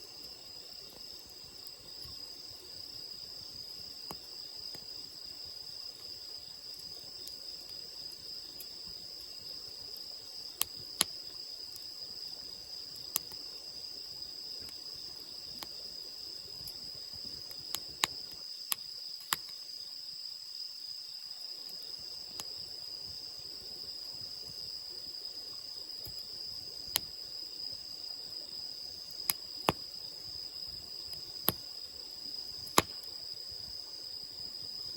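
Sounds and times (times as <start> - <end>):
insects chirring: 0.0 - 34.9
wood fire crackling: 0.2 - 19.6, 28.8 - 33.7
fire popping: 16.4 - 18.4, 29.0 - 31.8, 32.5 - 33.1.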